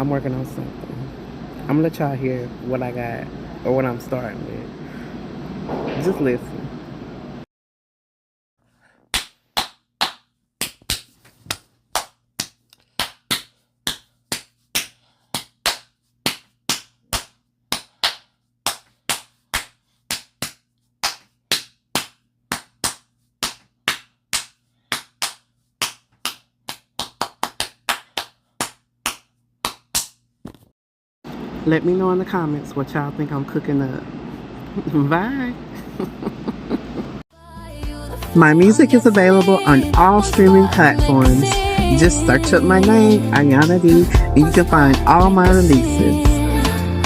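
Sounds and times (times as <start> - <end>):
rhythmic sharp claps: 9.1 - 30.2.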